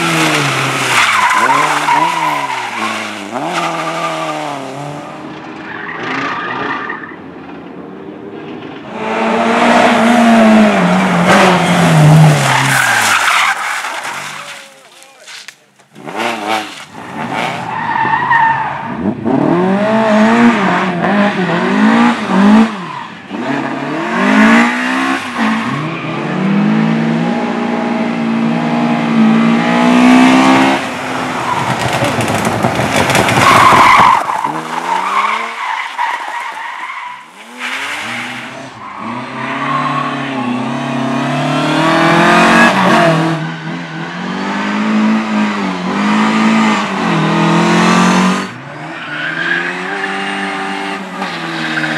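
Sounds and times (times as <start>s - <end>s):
tyres squealing: 0.2s - 4.3s, 12.4s - 15.8s
race car engine revving: 16.0s - 35.9s, 36.9s - 51.9s.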